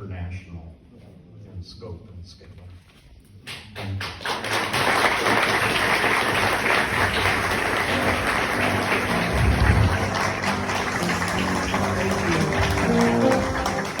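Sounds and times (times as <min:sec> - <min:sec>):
audience applauding: 0:03.8 - 0:14.0
voices over clapping: 0:06.1 - 0:14.0.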